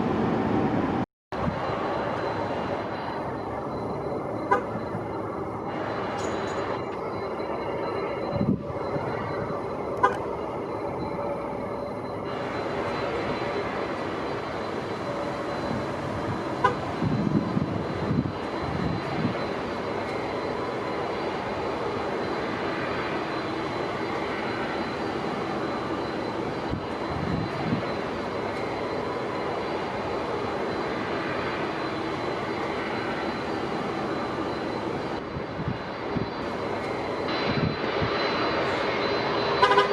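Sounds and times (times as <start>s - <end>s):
jet engines roaring: 0.0s - 39.9s
wind buffeting microphone: 8.1s - 9.6s, 15.0s - 19.6s, 26.6s - 28.1s, 34.9s - 36.6s, 37.3s - 38.6s.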